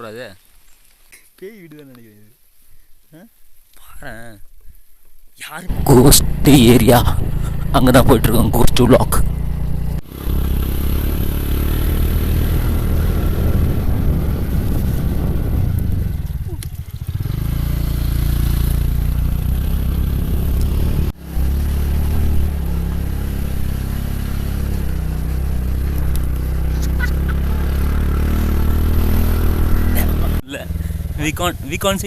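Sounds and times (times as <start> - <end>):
motorcycle engine drone: 5.7 - 32.0.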